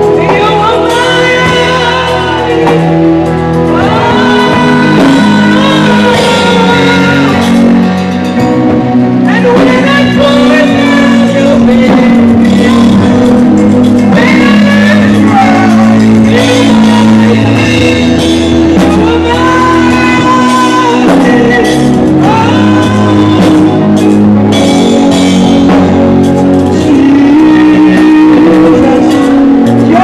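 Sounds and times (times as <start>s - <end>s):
gospel choir and band: 0.0s - 30.0s.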